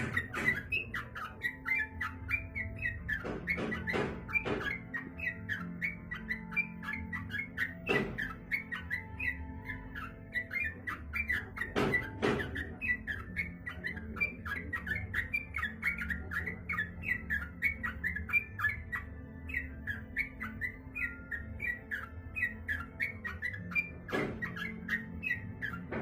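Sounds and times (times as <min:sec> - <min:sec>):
sharp knocks: 0:00.0 - 0:01.0, 0:03.1 - 0:05.0, 0:07.9 - 0:08.4, 0:11.6 - 0:12.8, 0:24.0 - 0:24.6
bird singing chirping notes: 0:00.0 - 0:26.0.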